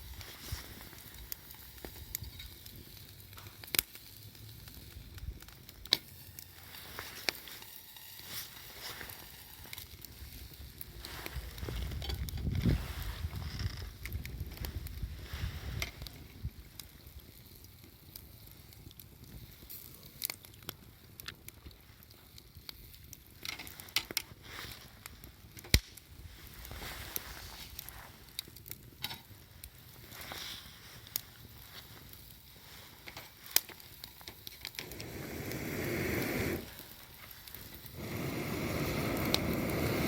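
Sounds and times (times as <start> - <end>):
campfire crackling and popping: 0.0 - 40.0
faint hiss: 5.9 - 14.0, 23.6 - 40.0.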